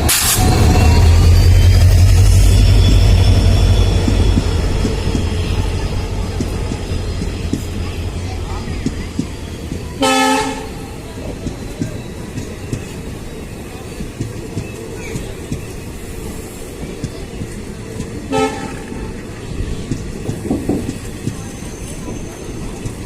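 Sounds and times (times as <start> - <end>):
train rumbling: 0.0 - 23.0
locomotive horn blasts: 10.0 - 10.8, 18.3 - 19.1.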